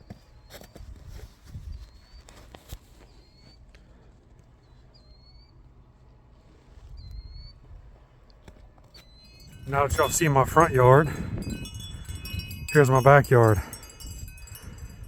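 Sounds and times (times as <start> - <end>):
small bird chirping: 3.0 - 3.6, 4.6 - 5.6, 7.0 - 7.6, 8.9 - 9.7.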